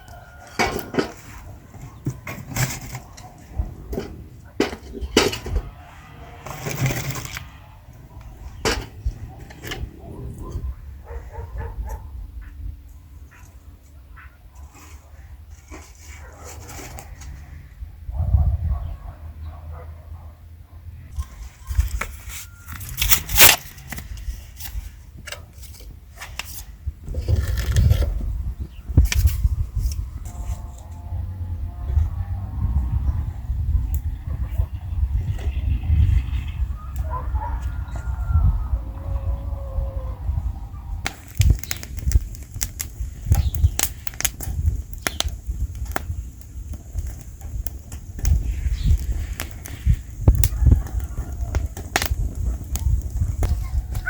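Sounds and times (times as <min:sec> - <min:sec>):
wood fire crackling: 0:00.0 - 0:10.6, 0:21.2 - 0:30.2, 0:41.0 - 0:54.0
objects scraping and knocking: 0:00.4 - 0:07.6, 0:08.4 - 0:10.6, 0:21.2 - 0:30.9
low rumbling: 0:03.4 - 0:13.2, 0:27.0 - 0:54.0.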